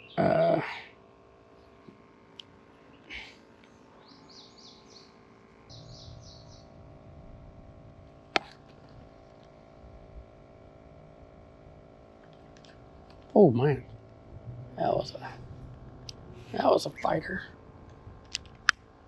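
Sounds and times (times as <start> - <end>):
bird chirping: 0.0 - 0.4, 4.0 - 6.8.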